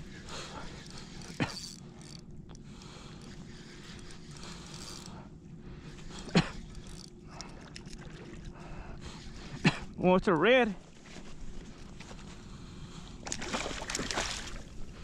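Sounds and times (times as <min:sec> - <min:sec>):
fishing reel winding: 0:00.6 - 0:05.2, 0:06.2 - 0:07.2.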